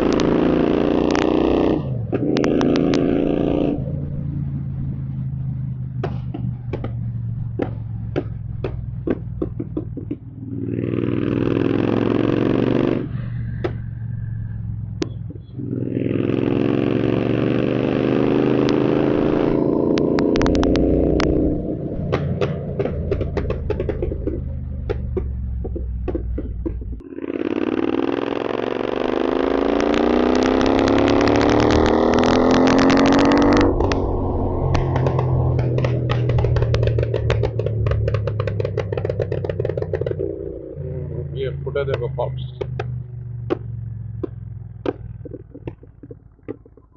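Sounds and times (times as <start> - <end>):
exhaust pops and crackles: 0.0 - 15.6, 18.5 - 46.9
motorcycle engine accelerating: 0.0 - 46.9.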